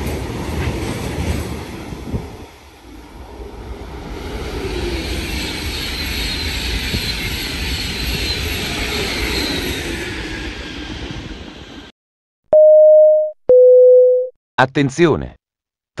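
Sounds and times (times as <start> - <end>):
train passing at speed: 0.0 - 11.9.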